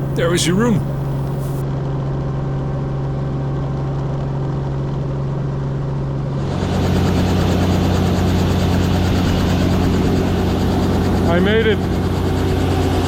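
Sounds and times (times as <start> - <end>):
helicopter engine and rotor hum: 0.0 - 1.6, 6.0 - 13.0.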